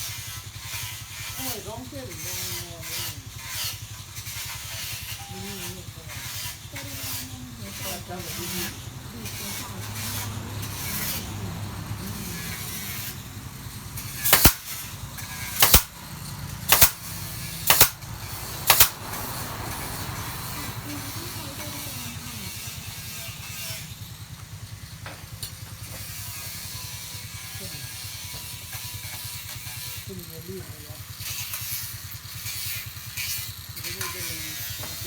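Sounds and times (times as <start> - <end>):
sharp impacts: 5.4 - 20.5.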